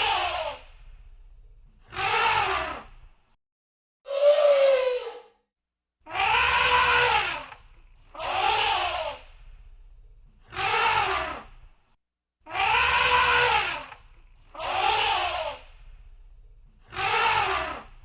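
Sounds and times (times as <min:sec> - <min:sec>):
elephant trumpeting: 0:06.1 - 0:07.5, 0:12.5 - 0:14.0, 0:16.9 - 0:17.9.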